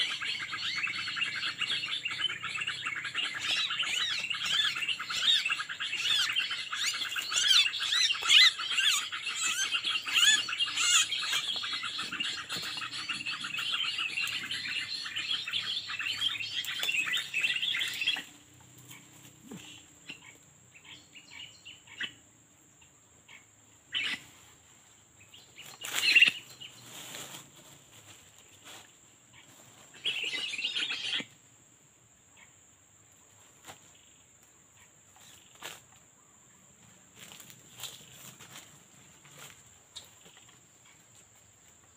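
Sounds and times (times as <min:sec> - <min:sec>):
small birds chirping: 0:00.0 - 0:22.2, 0:25.2 - 0:27.4, 0:28.4 - 0:31.4.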